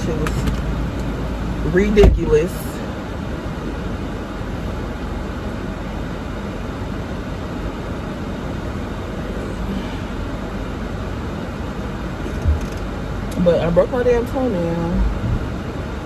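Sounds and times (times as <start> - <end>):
car air conditioning blowing: 0.0 - 16.0.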